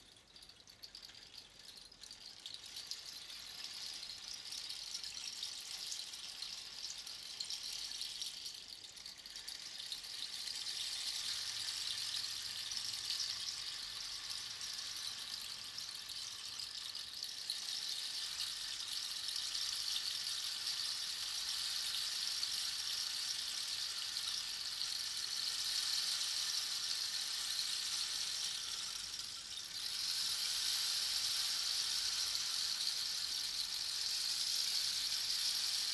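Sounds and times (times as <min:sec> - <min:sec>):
rain stick pattering: 0:24.6 - 0:35.9.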